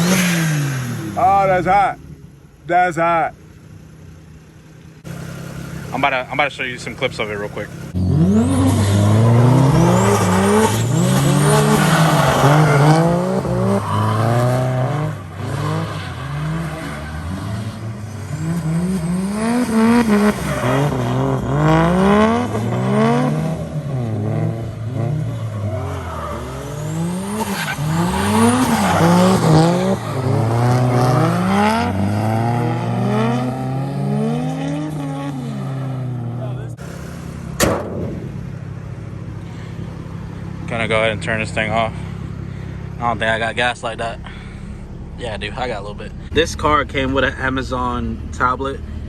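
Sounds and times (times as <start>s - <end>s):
car engine revving: 0.0s - 49.0s
tire squeal: 7.0s - 23.9s, 24.6s - 33.8s.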